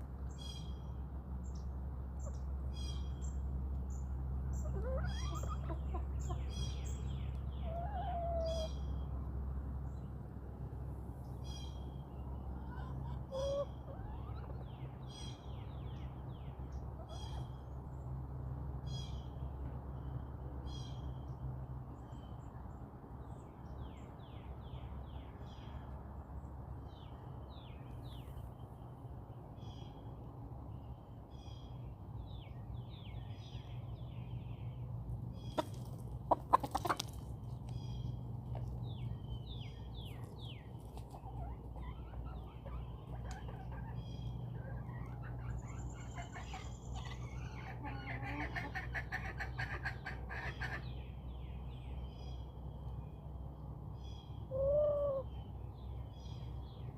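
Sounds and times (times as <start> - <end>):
songbird singing: 0.0 - 56.9
chickens clucking softly: 3.7 - 9.2, 12.1 - 17.9, 35.3 - 51.2.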